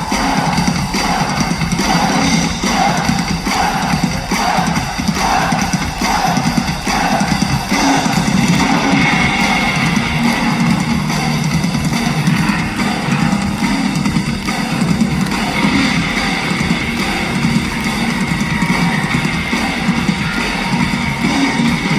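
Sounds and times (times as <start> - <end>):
drum kit playing: 0.0 - 21.9
bass guitar: 8.1 - 21.9.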